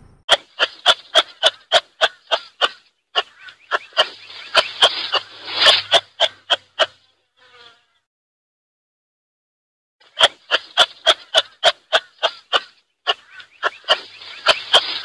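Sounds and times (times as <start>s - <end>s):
animal giving sharp calls: 0.3s - 7.2s, 10.0s - 15.0s.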